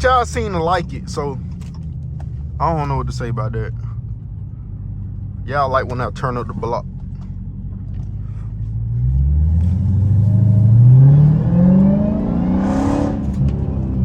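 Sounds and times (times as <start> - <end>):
car engine accelerating hard: 5.8 - 14.0.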